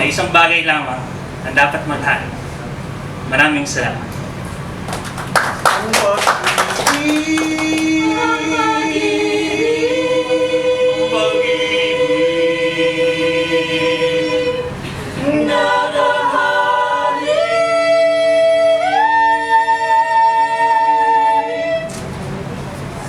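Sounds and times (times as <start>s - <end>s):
choir singing a cappella: 6.8s - 21.9s.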